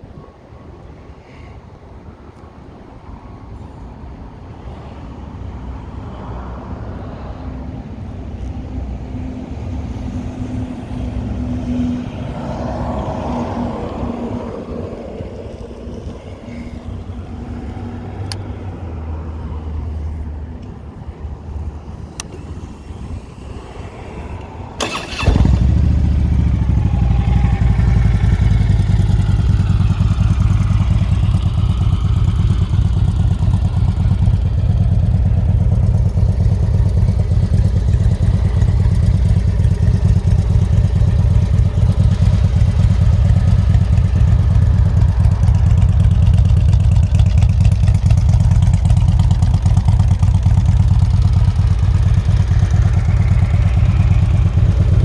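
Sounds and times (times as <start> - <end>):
motorcycle engine starting and idling: 12.2 - 18.6, 21.4 - 55.0.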